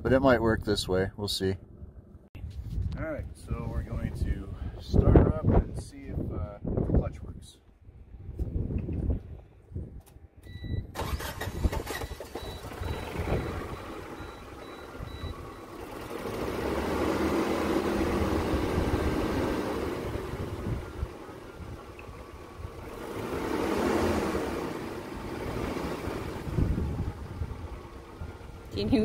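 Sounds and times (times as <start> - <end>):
car engine starting and revving: 10.9 - 29.0.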